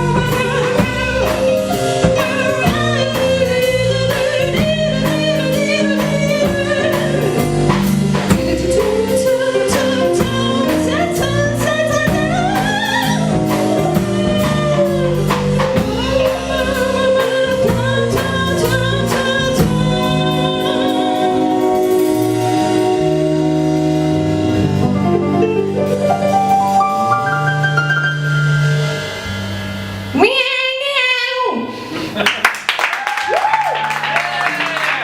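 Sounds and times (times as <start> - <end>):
woman singing: 0.0 - 22.2
bass: 0.0 - 35.0
drums: 0.0 - 35.0.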